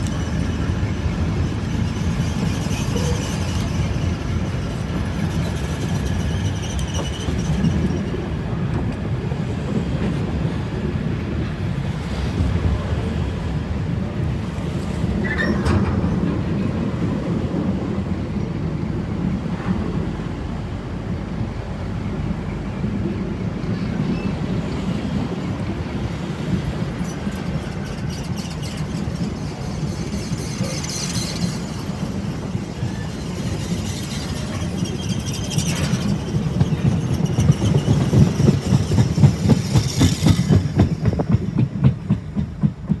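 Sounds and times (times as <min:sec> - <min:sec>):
high wheel squeals: 0:00.0 - 0:08.4, 0:15.2 - 0:15.8, 0:23.7 - 0:42.0
clickety-clack over rail joints: 0:00.0 - 0:43.0
freight wagons rumbling on rails: 0:00.0 - 0:43.0.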